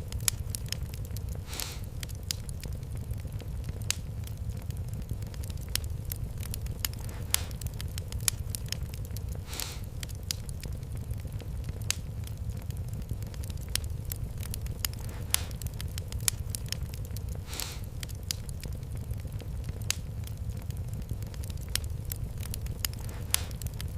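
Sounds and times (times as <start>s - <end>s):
wood fire crackling: 0.0s - 23.9s
hissing pop of fire: 1.3s - 2.5s, 5.4s - 10.4s, 13.4s - 18.4s, 21.7s - 23.8s.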